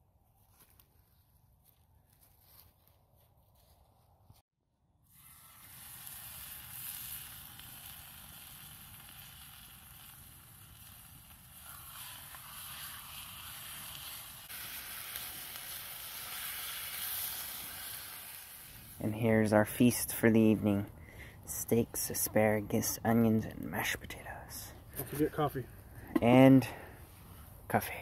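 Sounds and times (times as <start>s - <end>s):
food sizzling: 5.1s - 19.1s.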